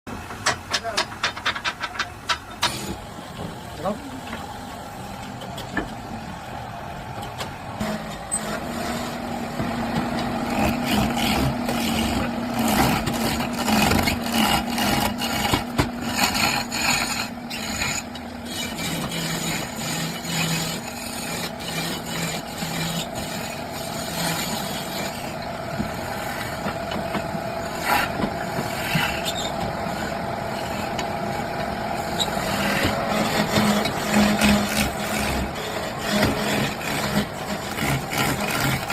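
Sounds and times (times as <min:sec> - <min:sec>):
wood lathe humming: 0:06.0 - 0:38.9
turning tool scraping wood: 0:07.8 - 0:38.9.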